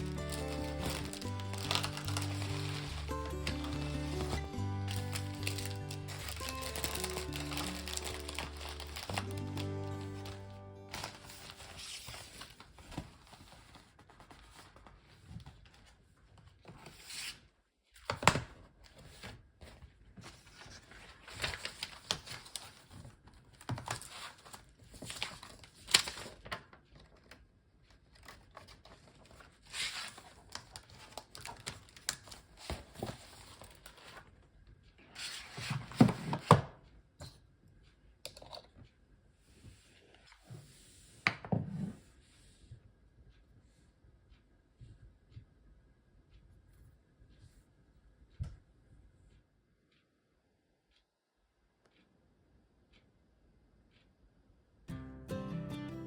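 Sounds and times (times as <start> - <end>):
wrapping material crinkling: 0.0 - 15.0.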